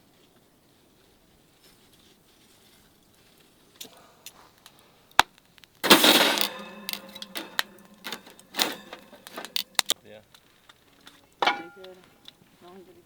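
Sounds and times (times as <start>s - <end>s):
metal objects clattering: 5.8s - 10.0s
sharp clicks: 5.8s - 10.0s.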